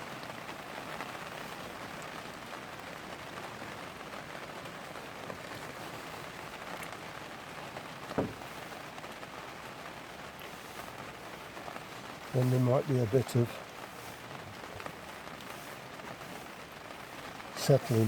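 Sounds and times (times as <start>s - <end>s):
rain on plastic cover: 0.0s - 18.0s
thump: 8.2s - 8.5s.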